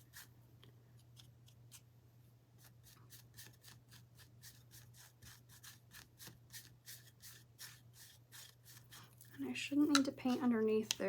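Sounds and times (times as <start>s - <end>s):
paintbrush strokes on wood: 2.6s - 11.0s.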